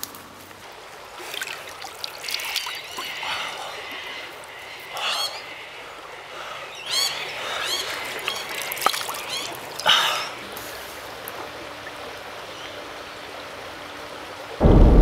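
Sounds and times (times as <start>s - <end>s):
creek water trickling: 0.0s - 14.6s
birds chirping: 2.3s - 10.5s.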